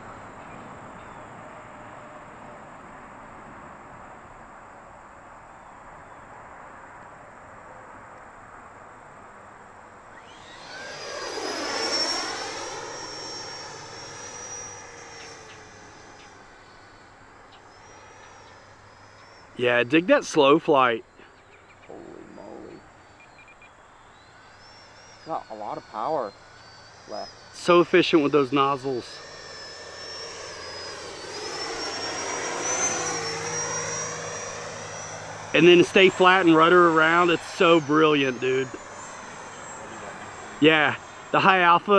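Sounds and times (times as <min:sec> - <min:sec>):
model jet fan whine passing by: 0:00.0 - 0:41.9.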